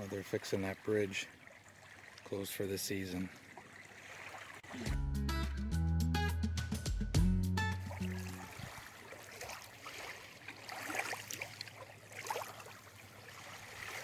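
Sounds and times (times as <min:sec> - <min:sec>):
running water trickling and splashing: 0:00.0 - 0:04.9, 0:07.8 - 0:14.0
background music: 0:04.9 - 0:08.5.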